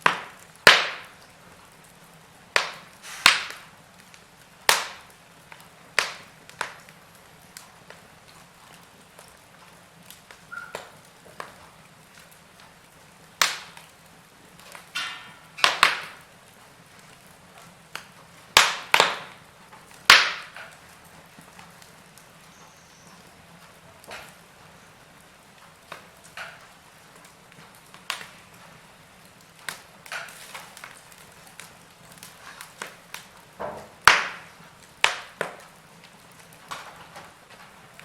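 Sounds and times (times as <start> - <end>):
sharp wood pops: 0.0 - 1.2, 2.6 - 3.7, 4.6 - 5.1, 6.0 - 6.8, 13.4 - 13.9, 14.8 - 16.2, 18.0 - 19.4, 20.0 - 20.7, 32.2 - 35.7
faint steady hiss: 0.0 - 38.0
logs crackling in fireplace: 0.0 - 38.0.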